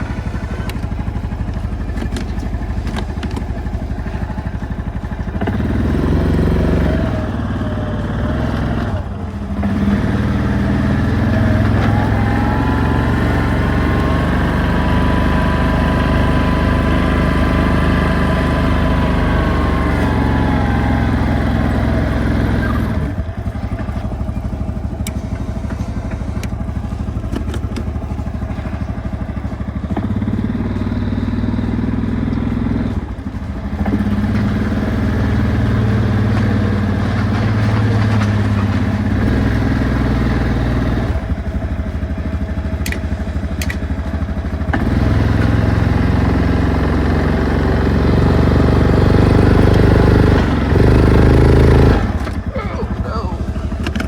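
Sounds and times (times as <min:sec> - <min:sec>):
snowplow engine under load: 0:00.0 - 0:54.0
light clattering clicks: 0:42.8 - 0:43.9.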